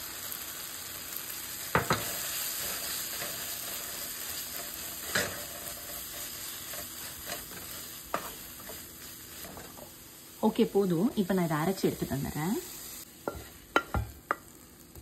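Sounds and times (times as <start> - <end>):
food sizzling in a pan: 0.0 - 15.0
spatula knocking against pan: 13.3 - 14.4.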